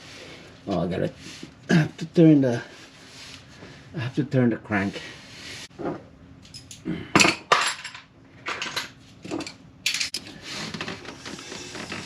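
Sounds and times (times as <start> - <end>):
metal tools clinking on metal: 6.4 - 8.0.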